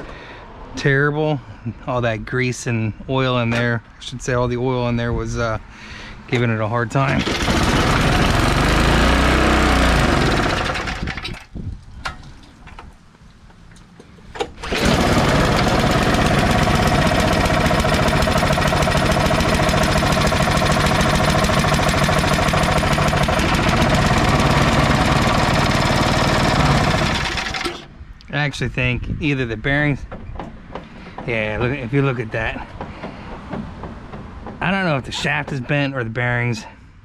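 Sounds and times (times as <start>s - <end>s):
snowblower engine running: 7.1s - 11.4s, 14.6s - 27.9s.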